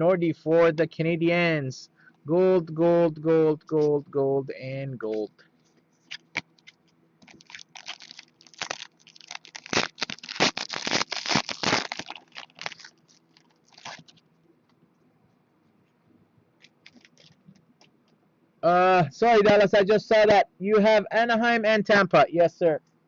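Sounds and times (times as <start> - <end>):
foil wrappers crinkling and tearing: 6.0 - 14.2, 16.6 - 17.4.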